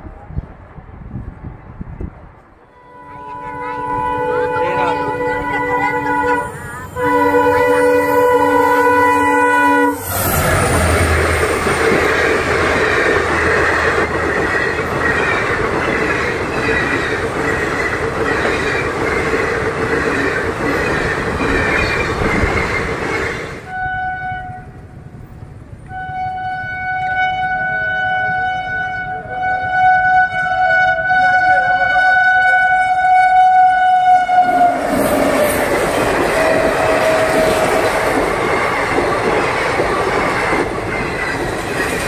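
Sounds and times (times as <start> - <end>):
passenger train rushing past: 0.0 - 42.0
train horn: 2.6 - 11.8, 23.6 - 25.0, 25.8 - 38.2
steady high horn-like tones: 2.6 - 12.1, 23.6 - 24.8, 25.8 - 38.3.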